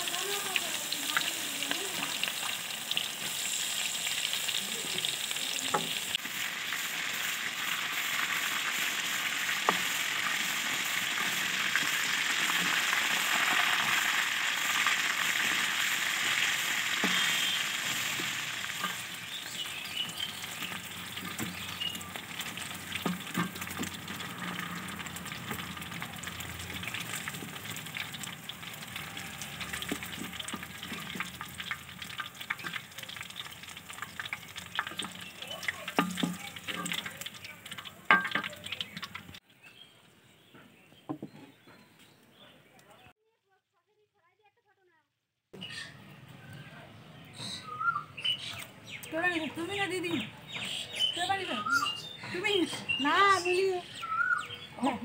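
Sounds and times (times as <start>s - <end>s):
skewers sizzling in hot oil: 0.0s - 39.4s.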